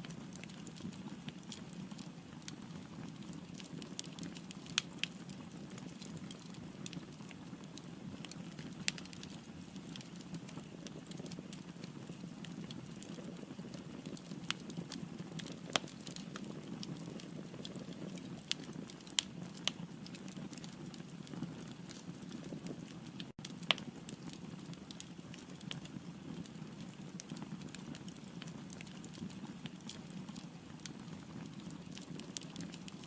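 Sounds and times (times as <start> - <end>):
fire hissing and crackling: 0.0 - 33.0.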